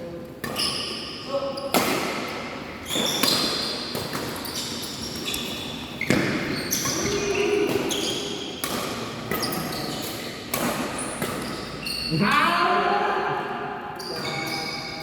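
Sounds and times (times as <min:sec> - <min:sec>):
shoes squeaking on court floor: 0:00.4 - 0:01.8, 0:02.8 - 0:12.5, 0:14.0 - 0:15.0
badminton racket hitting shuttlecock: 0:06.9 - 0:11.7.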